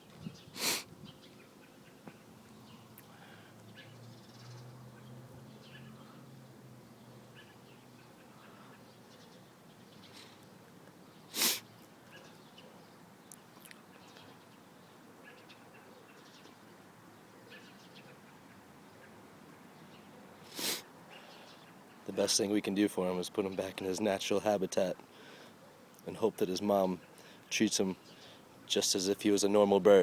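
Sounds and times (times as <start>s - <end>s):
small bird chirping: 7.3s - 16.8s.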